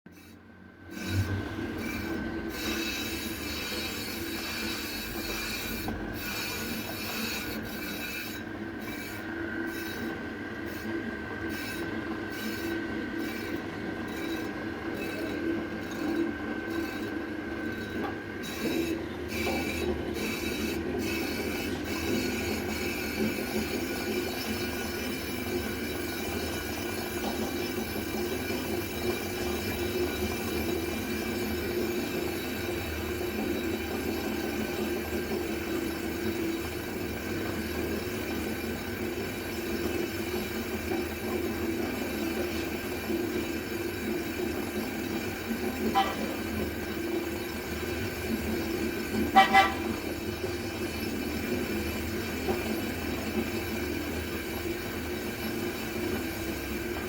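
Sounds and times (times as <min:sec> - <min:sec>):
brake drum screeching: 0:00.1 - 0:57.0
metal grinding hum: 0:00.1 - 0:57.0.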